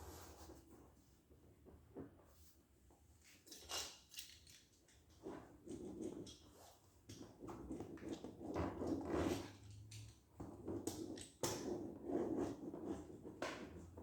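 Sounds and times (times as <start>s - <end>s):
rubbing and scuffing rubber: 0.0s - 0.6s.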